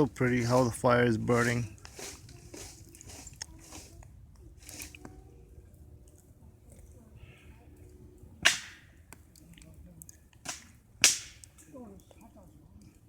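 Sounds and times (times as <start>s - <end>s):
campfire crackling: 0.0s - 13.0s
loud sharp fire pops: 8.4s - 8.8s, 10.4s - 11.6s.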